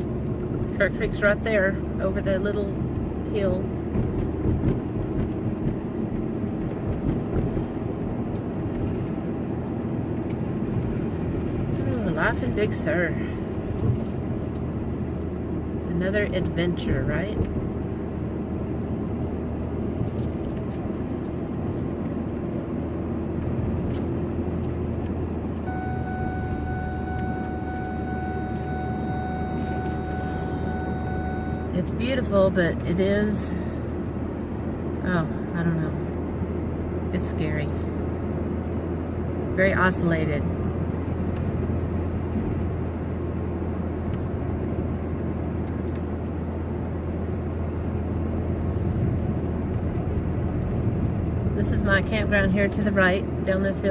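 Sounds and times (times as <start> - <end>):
truck road and engine rumble: 0.0 - 53.9
high-pitched electronic warning tone: 25.6 - 31.8.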